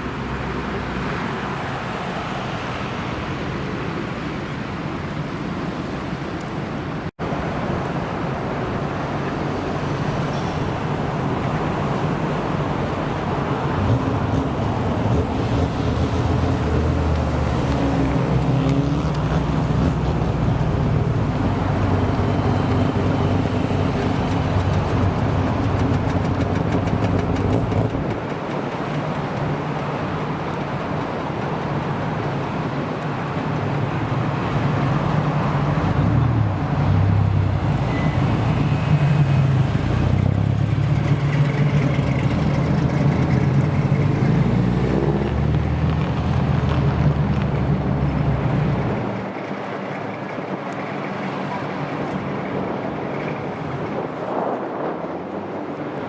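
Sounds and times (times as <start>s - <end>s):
car engine rumbling: 34.1s - 49.2s.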